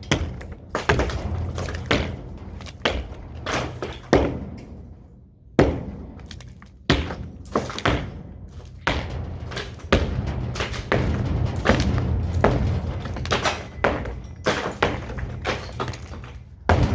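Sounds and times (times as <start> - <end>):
crumbling debris: 0.0 - 4.9, 5.6 - 16.9
low hum: 8.6 - 16.9.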